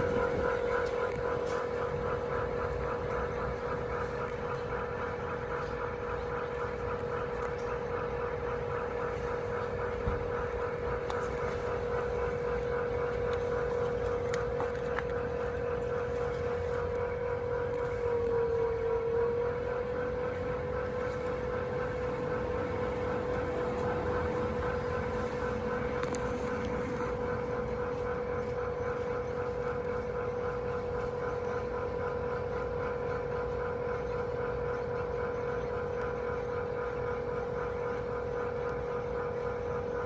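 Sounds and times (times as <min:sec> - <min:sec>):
air conditioner whining hum: 0:00.0 - 0:40.0.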